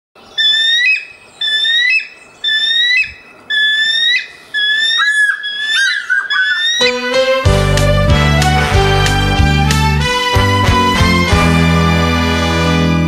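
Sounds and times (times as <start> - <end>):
bird whistled call: 0.3 - 6.9.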